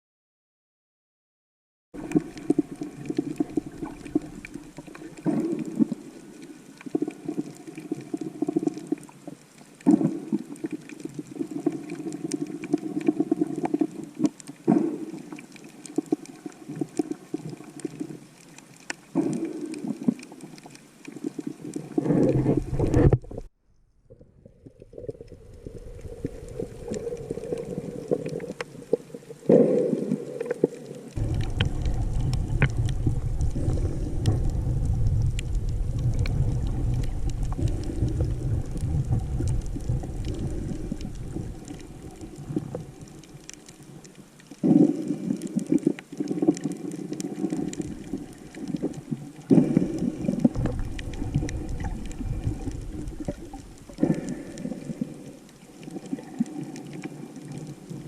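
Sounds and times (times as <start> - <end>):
underwater rumble and sloshing: 2.0 - 58.0.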